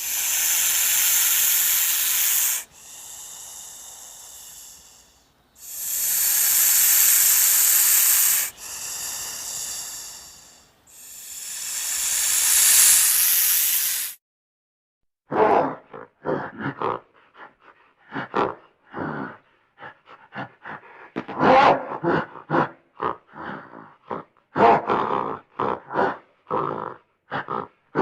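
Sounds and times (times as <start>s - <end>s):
wild animal grunting and roaring: 0.0s - 12.4s, 18.1s - 28.0s.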